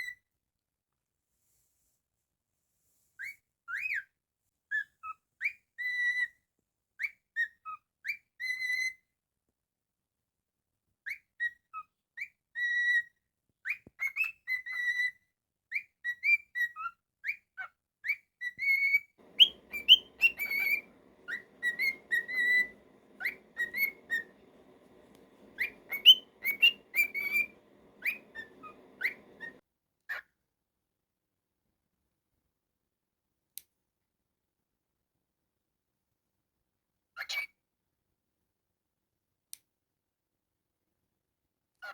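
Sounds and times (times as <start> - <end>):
cockatiel whistling: 19.2 - 29.6
upward-sweeping chirps: 19.2 - 29.6.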